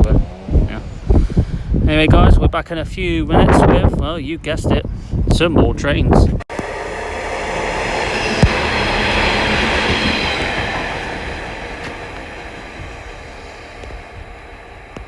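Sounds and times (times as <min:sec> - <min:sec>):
diesel train passing: 0:06.5 - 0:15.0
sharp knock: 0:08.0 - 0:13.2.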